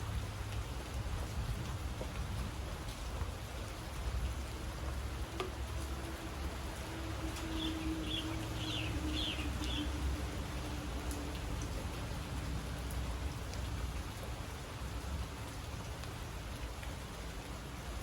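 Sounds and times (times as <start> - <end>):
raindrops tapping: 0.0 - 17.7
rain falling: 0.0 - 18.0
bird chirping: 7.5 - 9.9.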